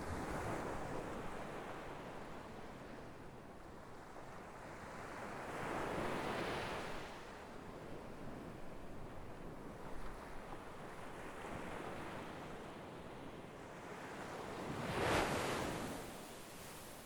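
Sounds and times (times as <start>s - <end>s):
sea waves breaking on shore: 14.6s - 17.0s.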